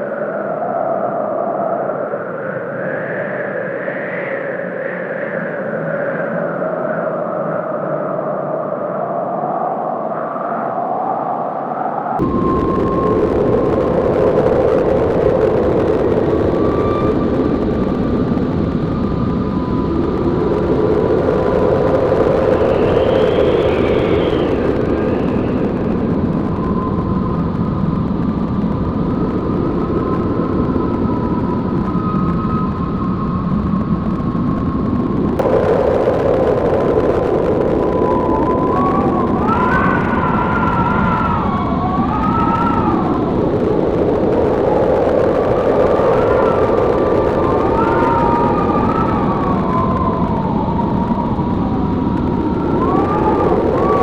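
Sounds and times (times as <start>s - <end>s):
blizzard wind howling: 0.0s - 54.0s
faint whistling tones: 21.6s - 26.0s.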